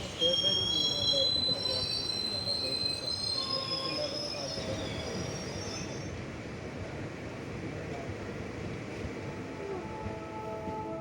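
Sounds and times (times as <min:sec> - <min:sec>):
train wheels squealing on rails: 0:00.0 - 0:06.6
moving train rumble: 0:00.0 - 0:11.0.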